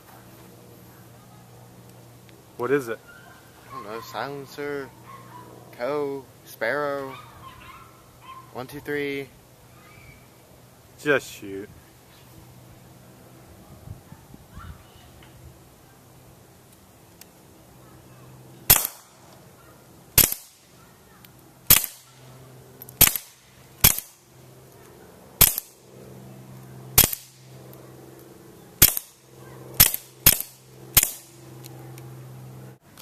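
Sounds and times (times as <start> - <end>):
steady low hum: 0.0 - 33.0
suppressed pistol shots: 18.7 - 19.2, 20.2 - 20.6, 21.7 - 22.1, 23.0 - 24.2, 25.4 - 25.7, 27.0 - 27.4, 28.8 - 29.2, 29.8 - 31.3.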